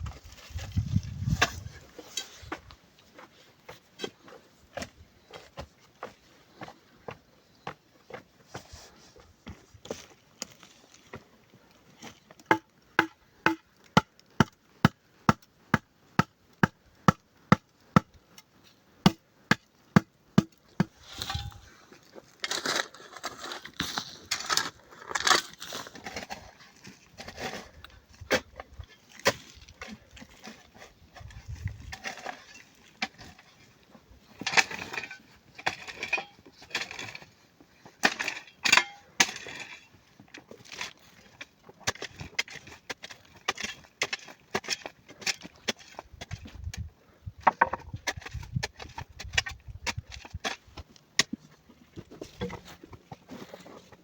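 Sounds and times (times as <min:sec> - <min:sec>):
scraping: 0:20.9 - 0:46.5.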